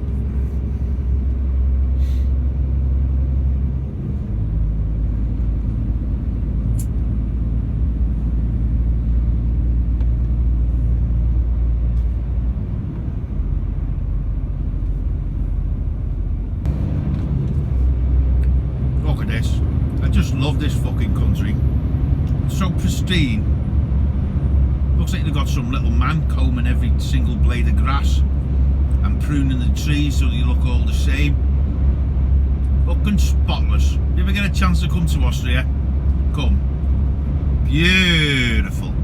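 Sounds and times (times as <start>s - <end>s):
heavy truck engine and tyres rumble: 0.0s - 39.0s.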